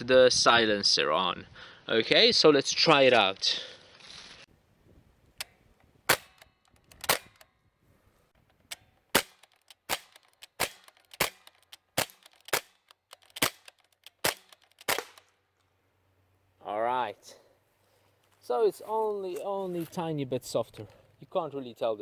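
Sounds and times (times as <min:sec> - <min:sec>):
airgun shots: 0:06.1 - 0:07.4, 0:09.1 - 0:15.3.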